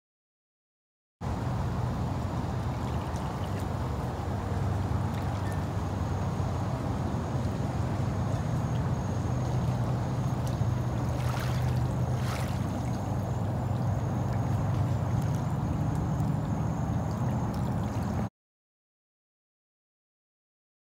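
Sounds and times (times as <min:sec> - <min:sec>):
small waves lapping on shore: 0:01.8 - 0:18.3.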